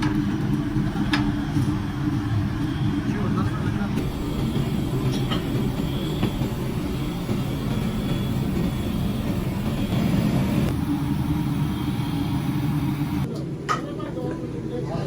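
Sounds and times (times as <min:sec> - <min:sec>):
motor running with low rumble: 0:04.0 - 0:13.3.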